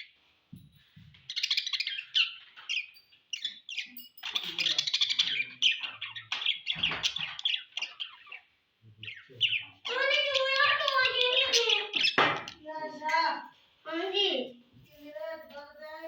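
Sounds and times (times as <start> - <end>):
budgerigars chirping: 1.1 - 12.6.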